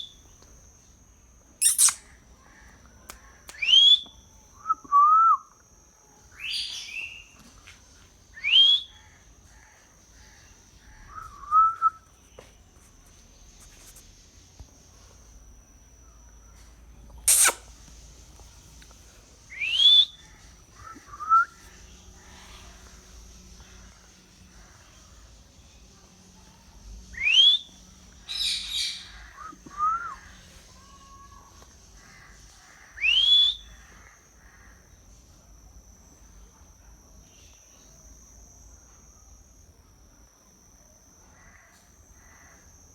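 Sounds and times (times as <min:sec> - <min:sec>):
faint high-pitched tone: 0:00.0 - 0:42.9
parrot calling and squawking: 0:01.6 - 0:02.1, 0:17.3 - 0:17.6
parrot whistles: 0:01.6 - 0:02.1, 0:17.3 - 0:17.6, 0:19.5 - 0:20.2, 0:33.0 - 0:33.7.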